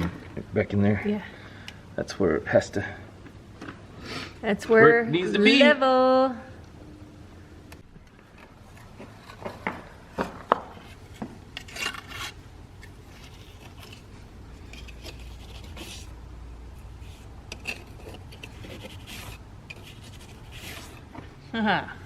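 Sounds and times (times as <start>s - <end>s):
bricks scraping clicking and knocking: 8.7s - 16.1s, 17.0s - 21.2s.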